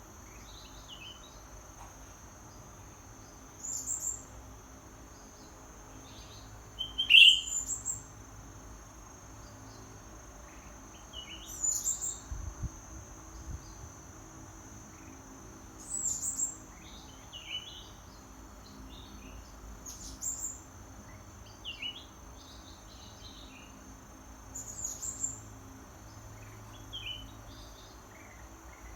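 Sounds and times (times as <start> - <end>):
high-pitched insect drone: 6.0 - 8.4
short bird calls: 6.8 - 7.7.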